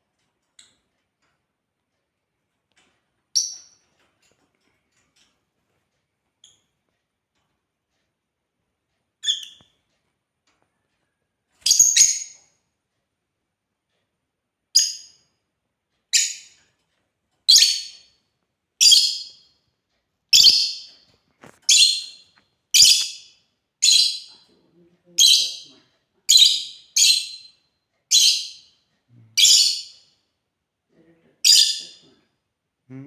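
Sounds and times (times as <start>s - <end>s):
bird giving high-pitched calls: 20.4s - 20.9s.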